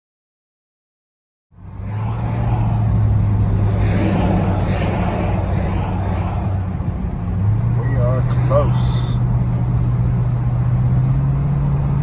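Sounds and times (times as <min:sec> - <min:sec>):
motor vehicle running: 0:01.6 - 0:12.0.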